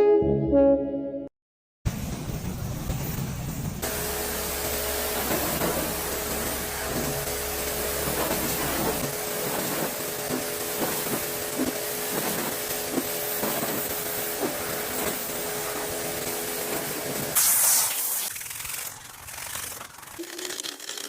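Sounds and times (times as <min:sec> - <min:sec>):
machine humming: 0:03.8 - 0:17.4
spray hiss: 0:08.0 - 0:18.3.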